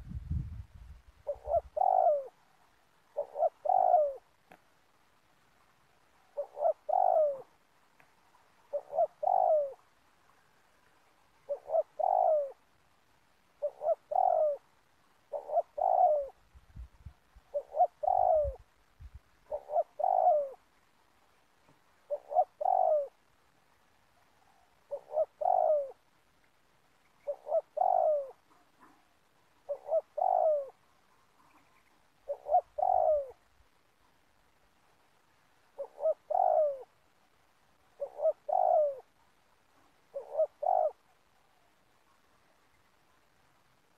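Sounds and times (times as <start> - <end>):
dove cooing: 1.2 - 4.5, 6.2 - 7.7, 8.3 - 10.6, 11.4 - 12.7, 13.6 - 16.4, 17.3 - 18.8, 19.4 - 20.6, 22.0 - 23.3, 24.3 - 26.0, 27.2 - 33.5, 35.7 - 37.0, 37.8 - 39.2, 40.0 - 41.9.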